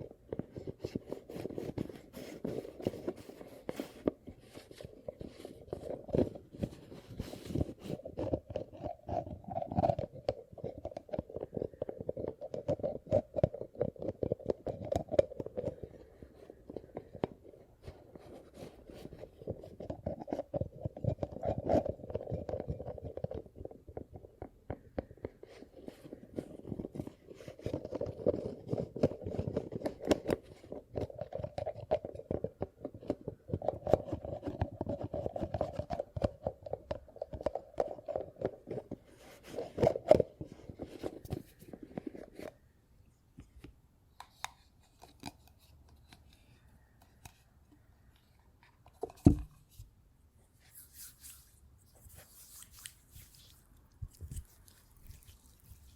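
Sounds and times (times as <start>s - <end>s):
close crackling and crunching: 50.9s - 55.9s.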